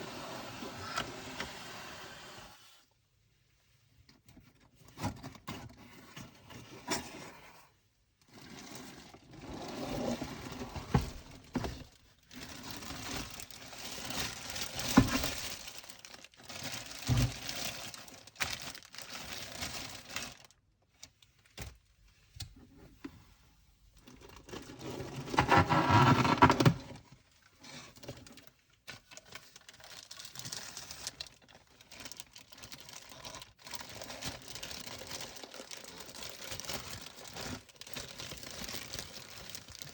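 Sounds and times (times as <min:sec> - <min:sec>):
packaging crinkling and rustling: 0:08.3 - 0:21.9, 0:24.0 - 0:39.9.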